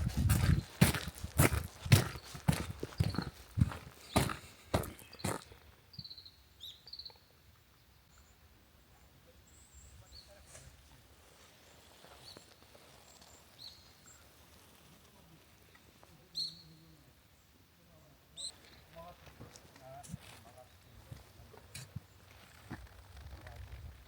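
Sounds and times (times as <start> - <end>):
small birds chirping: 0.0 - 10.5, 11.6 - 14.6, 15.2 - 19.2.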